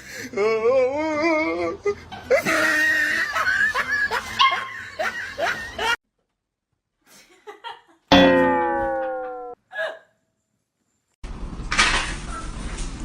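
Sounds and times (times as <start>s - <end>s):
laughter: 1.9s - 6.0s, 7.1s - 8.1s.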